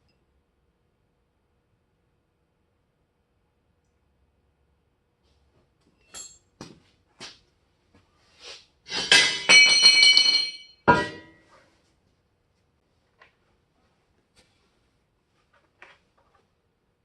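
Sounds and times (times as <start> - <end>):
metallic clatter and ringing: 8.9 - 11.4.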